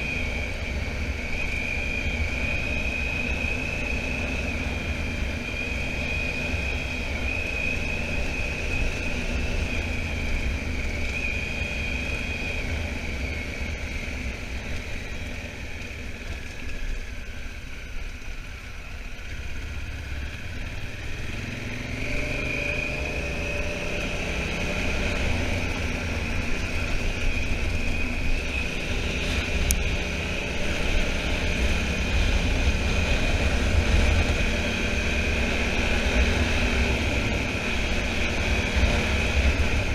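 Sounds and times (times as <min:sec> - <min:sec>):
motorcycle engine accelerating: 0:00.0 - 0:39.9
wind rumble on microphone: 0:22.0 - 0:39.9.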